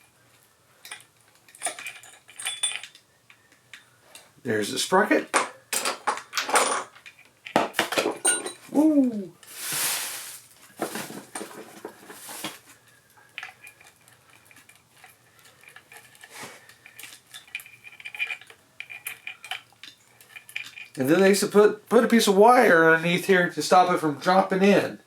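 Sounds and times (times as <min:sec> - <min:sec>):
metal tools clinking: 0:00.8 - 0:03.0, 0:05.0 - 0:08.7, 0:13.3 - 0:21.2.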